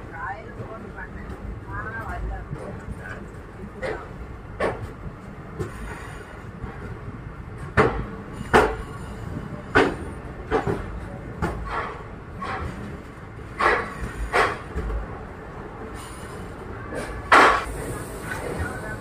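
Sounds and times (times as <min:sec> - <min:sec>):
train rumbling: 0:00.0 - 0:19.0
wheels clacking over rail joints: 0:00.4 - 0:19.0.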